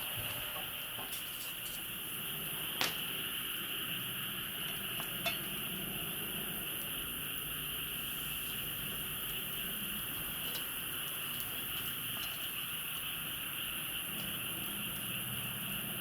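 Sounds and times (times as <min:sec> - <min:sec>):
insects chirring: 0:00.0 - 0:16.0
metal utensil clinking on cookware: 0:05.1 - 0:05.5.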